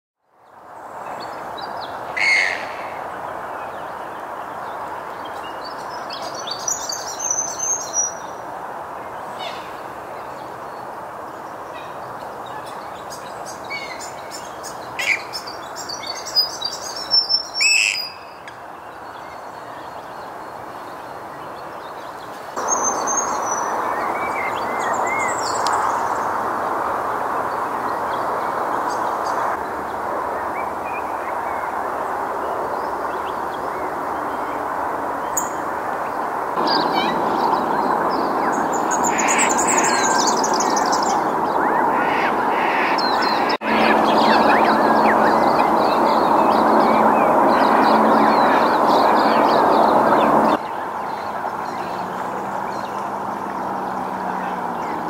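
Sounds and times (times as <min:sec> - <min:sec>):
birds calling: 0:11.5 - 0:26.6, 0:36.6 - 0:55.0.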